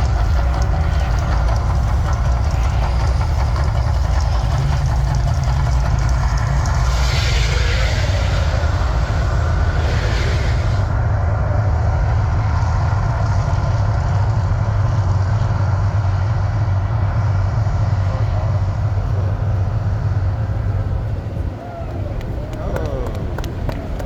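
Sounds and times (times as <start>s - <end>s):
hissing rush: 0.0s - 11.3s
loud low rumble: 0.0s - 24.0s.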